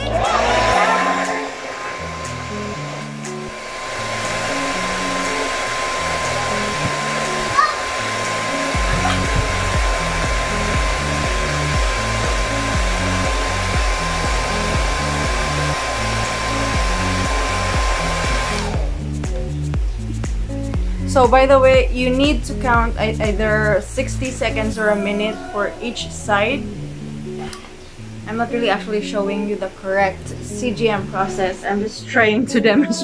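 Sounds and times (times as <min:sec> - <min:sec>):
hair dryer running: 0:00.0 - 0:19.2.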